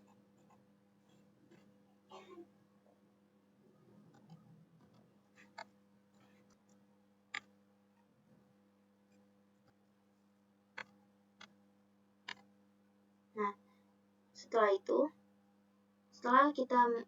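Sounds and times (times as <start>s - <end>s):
faint steady hum: 0.0s - 17.0s
computer mouse clicks: 4.1s - 7.5s, 10.8s - 11.6s, 12.3s - 12.5s.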